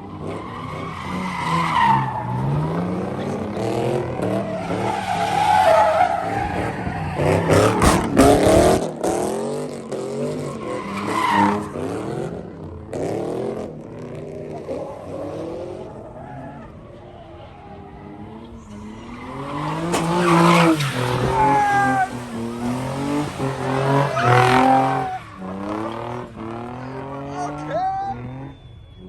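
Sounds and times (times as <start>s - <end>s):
car engine revving: 0.0s - 29.0s
tyres screeching: 16.1s - 29.0s.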